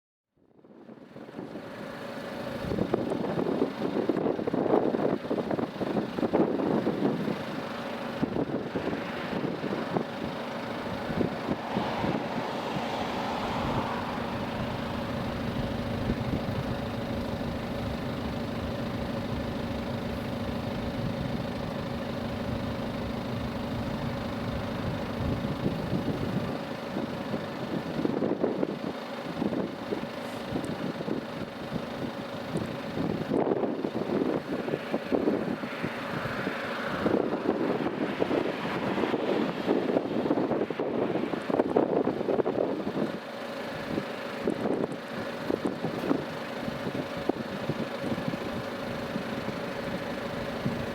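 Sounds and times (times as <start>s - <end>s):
jet engines humming: 7.5s - 28.0s
wind buffeting microphone: 8.2s - 43.2s.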